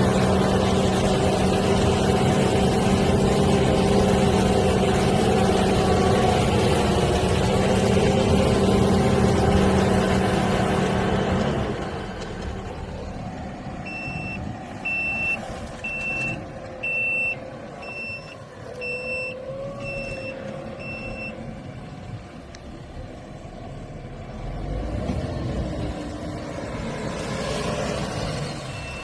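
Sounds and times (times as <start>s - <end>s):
tractor engine running: 0.0s - 29.0s
electronic beeper beeps: 13.9s - 21.4s.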